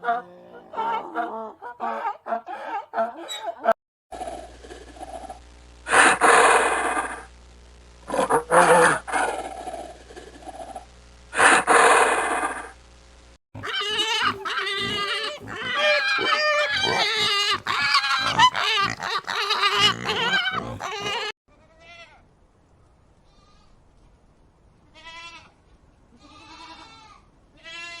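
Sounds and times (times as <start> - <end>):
goats bleating: 13.6 - 21.3.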